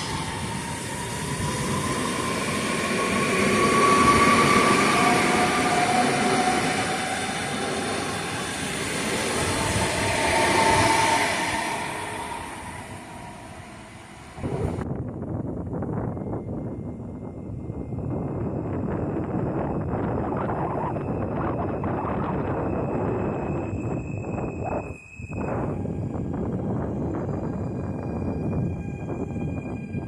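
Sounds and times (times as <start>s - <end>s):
gliding metallic whines: 0.0s - 14.8s, 16.1s - 30.0s
train rumbling past: 0.0s - 15.0s.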